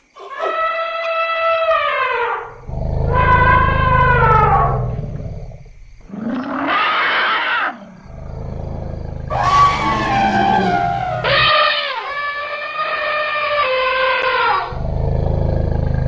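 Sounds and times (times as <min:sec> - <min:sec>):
elephants trumpeting: 0:09.3 - 0:12.2.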